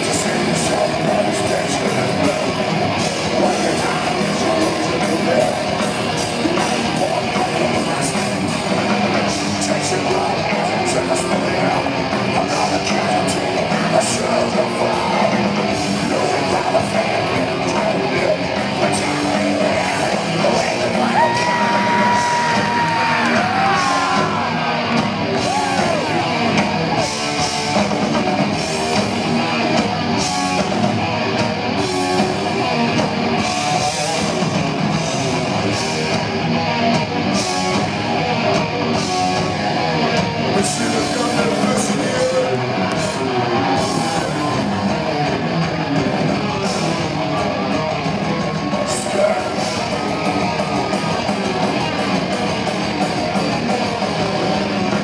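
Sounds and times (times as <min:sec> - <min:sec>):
heavy metal band playing: 0:00.0 - 0:55.0
shouted vocal: 0:20.6 - 0:26.6, 0:42.6 - 0:45.6.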